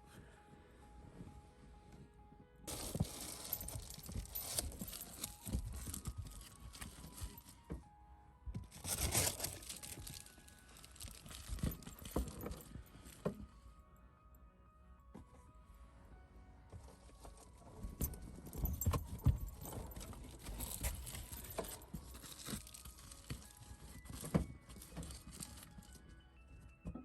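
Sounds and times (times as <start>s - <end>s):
quiet background music: 0.0s - 27.0s
jingling: 2.7s - 7.6s, 8.8s - 13.3s, 17.8s - 26.1s
things rustling and clattering: 2.7s - 7.9s, 8.6s - 13.6s, 16.8s - 26.2s.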